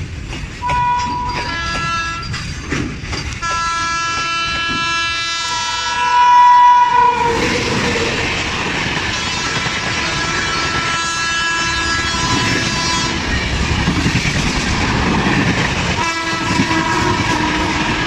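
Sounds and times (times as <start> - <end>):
train clattering past: 0.0 - 18.0
locomotive horn blasts: 0.6 - 2.2, 3.4 - 7.5, 10.5 - 13.2, 16.0 - 18.0.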